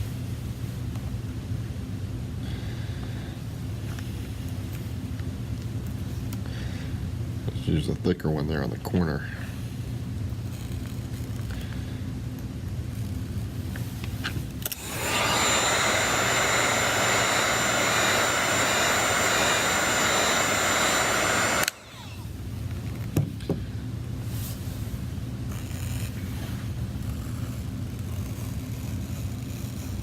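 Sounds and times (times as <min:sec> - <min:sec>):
hot-air blower whining: 0:13.5 - 0:24.8.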